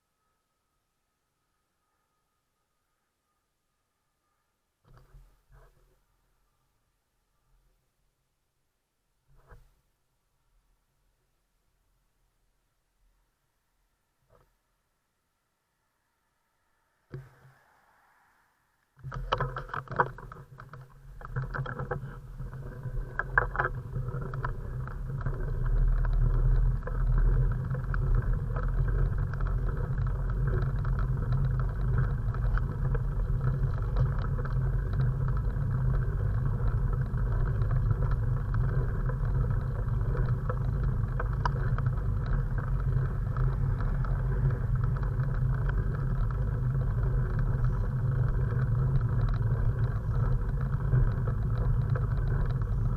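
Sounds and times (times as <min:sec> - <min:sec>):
wind rumble: 0:16.2 - 0:52.9
clicks and knocks: 0:19.0 - 0:52.9
road noise: 0:21.9 - 0:52.9.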